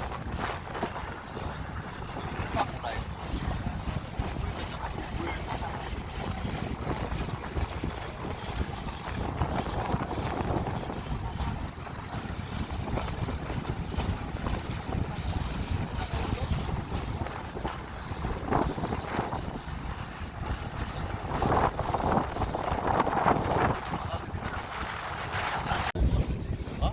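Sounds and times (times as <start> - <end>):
wind buffeting microphone: 0.0 - 26.9.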